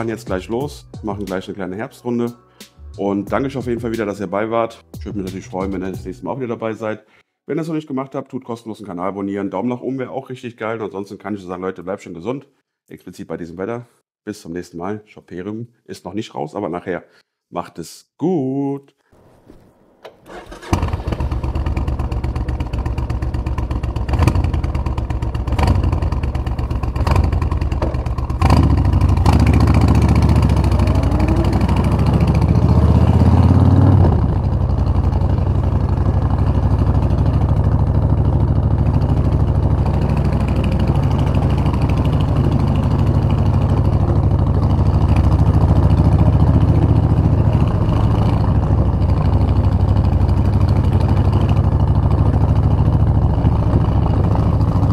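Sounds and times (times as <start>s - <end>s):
motorcycle pulling away: 20.2s - 54.9s
motorcycle engine idling: 20.4s - 54.9s.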